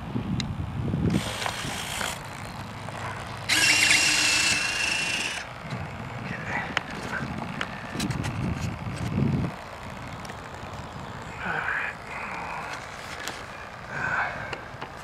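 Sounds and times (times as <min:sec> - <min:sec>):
small electric motor whirring: 0:00.5 - 0:15.0.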